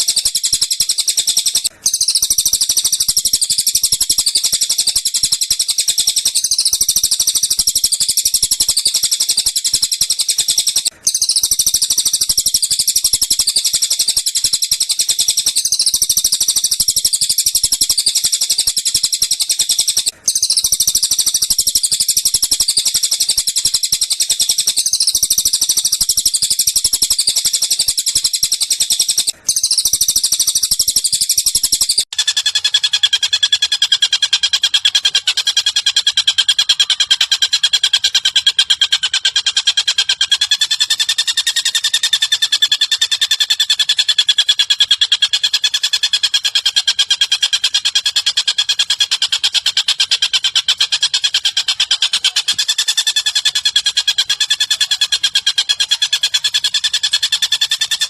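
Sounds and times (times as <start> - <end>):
rapid high-pitched bird chattering: 0.0 - 58.0.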